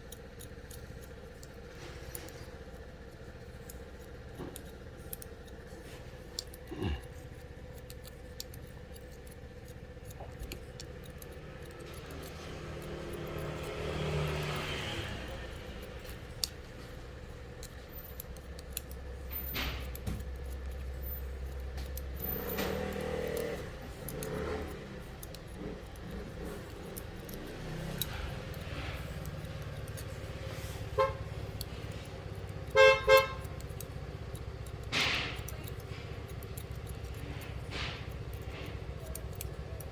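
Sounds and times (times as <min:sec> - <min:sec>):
street traffic: 0:00.0 - 0:39.9
car horn toots: 0:30.8 - 0:31.4, 0:32.7 - 0:33.6.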